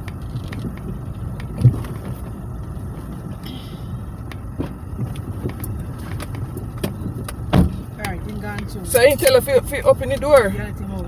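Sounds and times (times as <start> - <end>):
car cabin rumble: 0.0 - 11.0
thump: 7.5 - 7.8.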